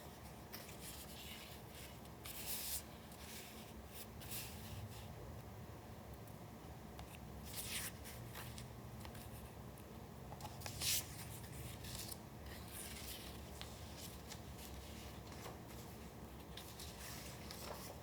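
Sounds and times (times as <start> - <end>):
paper rustling: 10.4 - 18.0.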